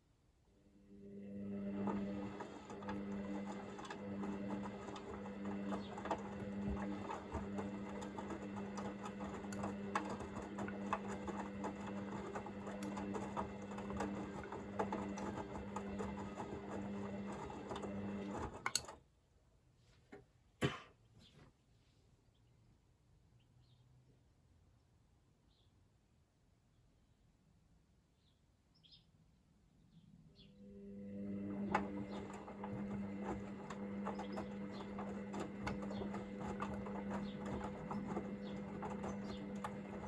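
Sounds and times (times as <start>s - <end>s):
washing machine drum humming: 1.2s - 19.0s, 31.0s - 40.0s
load tumbling with clicks: 31.5s - 40.0s.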